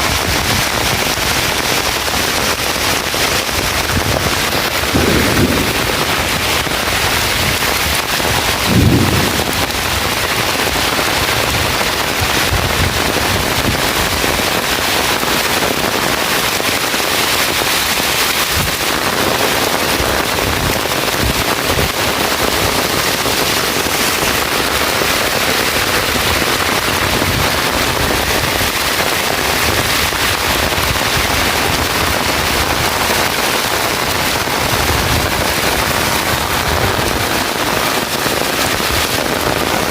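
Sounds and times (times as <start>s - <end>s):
heavy rain falling: 0.0s - 39.9s
low thump: 5.0s - 6.0s.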